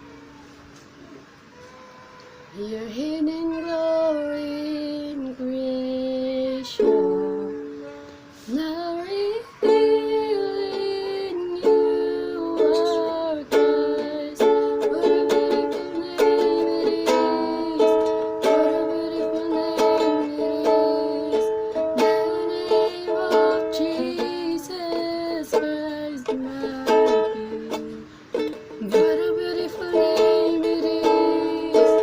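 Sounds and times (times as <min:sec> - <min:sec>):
ukulele strumming chords: 0:06.6 - 0:08.0, 0:09.6 - 0:32.0.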